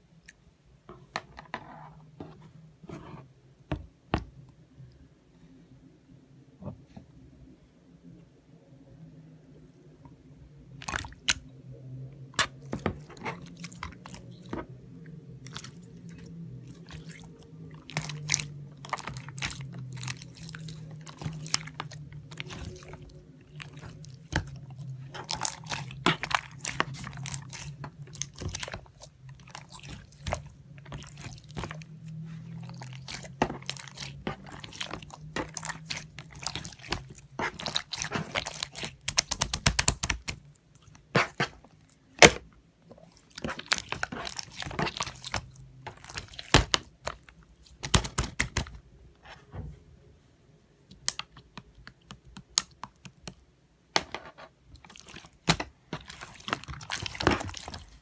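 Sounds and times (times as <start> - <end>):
low steady hum: 0.0 - 58.0
crunching and crackling clicks: 12.3 - 48.8, 54.8 - 58.0.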